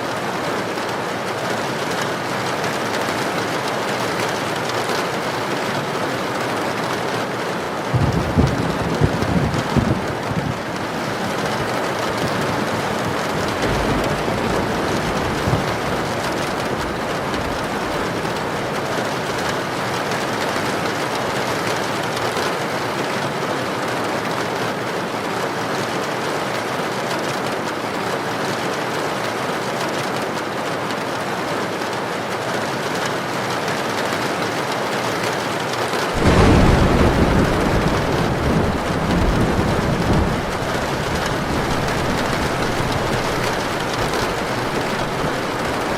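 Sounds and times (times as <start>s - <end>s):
heavy rain hissing: 2.2s - 22.2s, 36.1s - 45.9s
thunder rumble: 7.9s - 22.2s, 36.2s - 45.9s.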